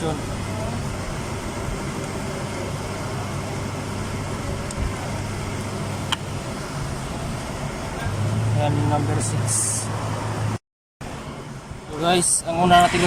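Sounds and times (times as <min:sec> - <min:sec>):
low mechanical hum: 0:00.0 - 0:08.2.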